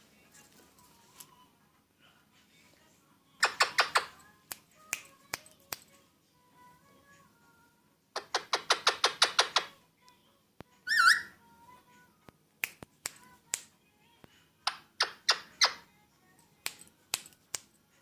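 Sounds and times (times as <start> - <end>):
parakeet clicking calls: 3.4 - 4.2, 8.2 - 9.7, 14.7 - 15.8
parakeet warbling whistle: 10.9 - 11.3.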